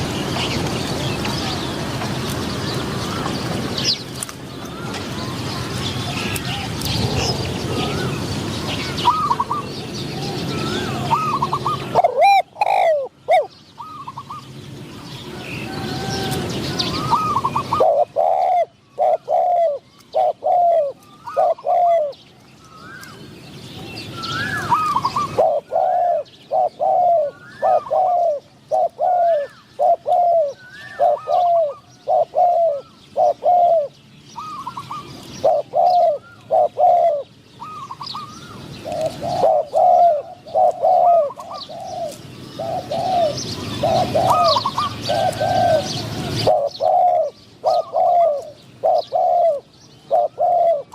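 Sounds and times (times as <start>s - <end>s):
doves cooing: 0.0s - 23.3s, 24.0s - 50.9s.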